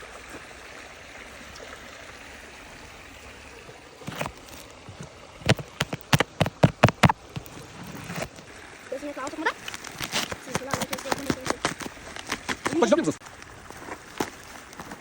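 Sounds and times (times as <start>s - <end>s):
stream rushing: 0.0s - 15.0s
sharp knocks: 5.4s - 7.5s.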